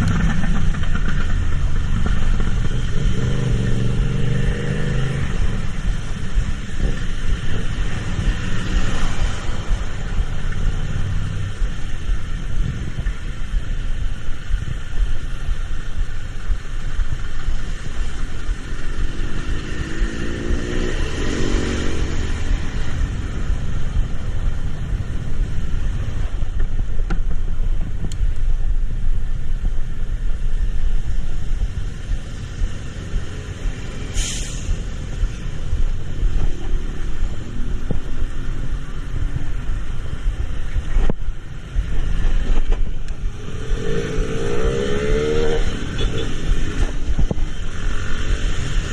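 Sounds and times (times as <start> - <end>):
heavy vehicle rumble: 0.0 - 48.9
engine passing by: 17.7 - 25.3, 41.7 - 48.9
sharp hiss: 33.9 - 35.3.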